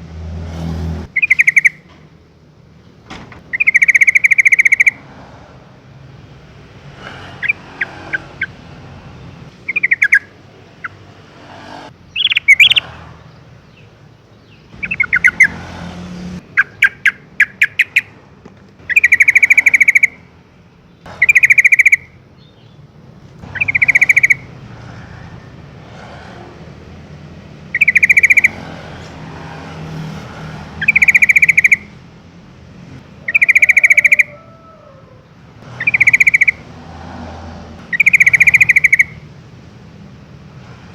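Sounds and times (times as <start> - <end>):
bird singing: 1.1 - 2.0, 3.4 - 5.0, 9.5 - 11.0, 12.0 - 15.6, 16.4 - 18.2, 18.8 - 24.6, 27.7 - 28.8, 30.7 - 32.0, 33.2 - 36.6, 37.9 - 39.3.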